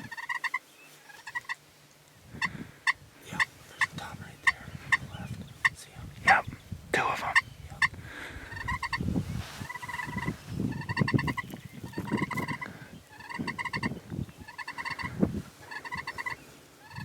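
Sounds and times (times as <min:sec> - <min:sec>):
short turkey calls: 0:00.0 - 0:01.6, 0:02.4 - 0:09.0, 0:09.6 - 0:17.0
turkey gobbling: 0:00.0 - 0:01.6, 0:07.2 - 0:09.0, 0:09.6 - 0:17.0.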